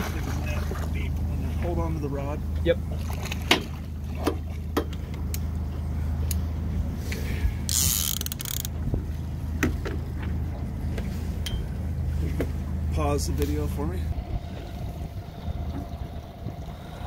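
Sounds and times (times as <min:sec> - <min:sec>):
boat motor idling: 0:00.0 - 0:17.0.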